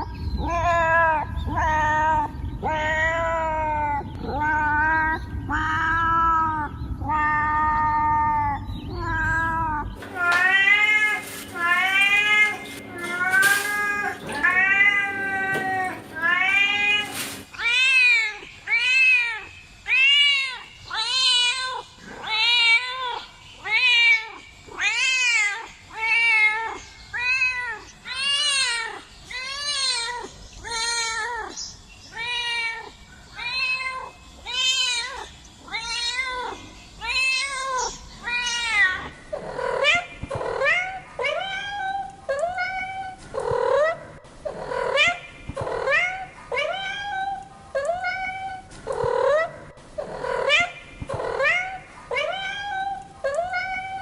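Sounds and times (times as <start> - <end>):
cats meowing: 0.0 - 54.0.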